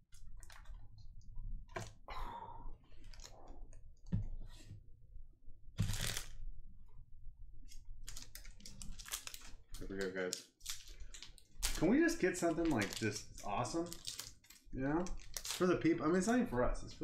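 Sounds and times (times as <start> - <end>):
foil wrapper crinkling and tearing: 5.8 - 6.4, 8.0 - 15.8
cards being handled: 7.7 - 15.7.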